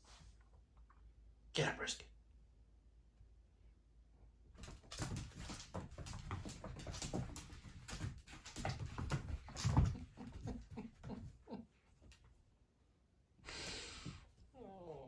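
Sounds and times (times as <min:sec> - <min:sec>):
pet paws scrambling on floor: 0:04.6 - 0:12.4.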